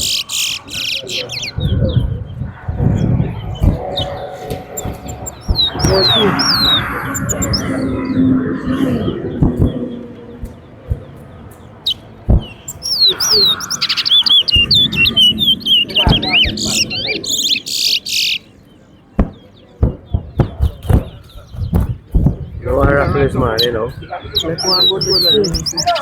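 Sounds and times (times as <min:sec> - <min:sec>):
finch warbling song: 0:00.0 - 0:18.4, 0:22.9 - 0:26.0
sharp knocks: 0:02.6 - 0:07.8.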